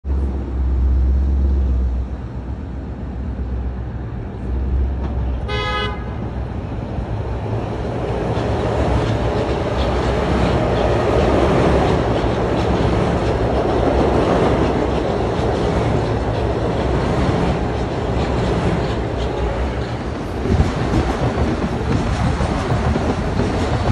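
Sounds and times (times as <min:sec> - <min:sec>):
train horn blast: 0:05.4 - 0:06.3
train wheels on rails: 0:06.2 - 0:23.9.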